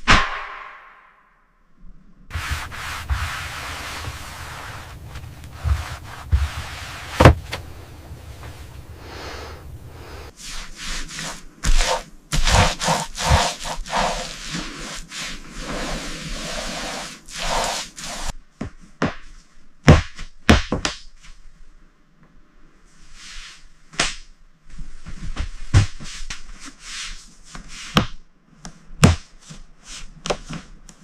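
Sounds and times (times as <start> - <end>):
scraping and rubbing strokes: 2.3 - 18.4.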